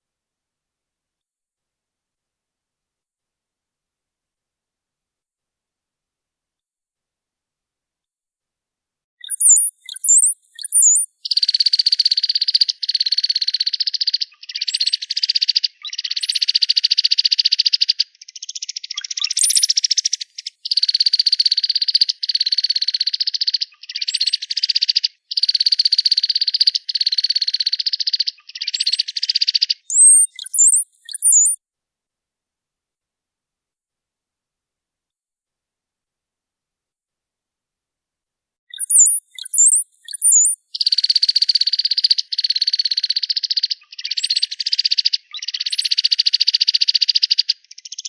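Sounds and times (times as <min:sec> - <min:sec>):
thin high bird whistles: 0:09.2 - 0:11.9, 0:18.9 - 0:21.0, 0:28.6 - 0:31.6, 0:38.7 - 0:41.6
buzzy rattling bird trills: 0:09.2 - 0:13.0, 0:17.8 - 0:31.6, 0:38.7 - 0:48.0.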